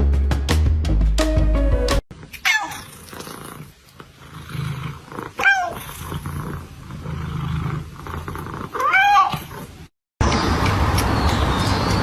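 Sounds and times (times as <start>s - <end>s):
cat meowing: 5.4s - 5.8s, 8.7s - 9.5s.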